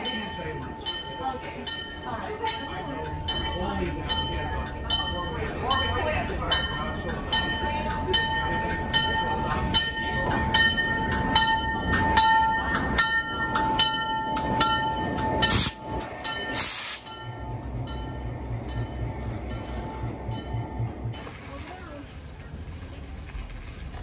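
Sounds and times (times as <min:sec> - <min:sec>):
train passing on rails: 0:00.0 - 0:24.0
short hissing bursts: 0:16.6 - 0:17.0
low rhythmic thudding: 0:17.0 - 0:21.2.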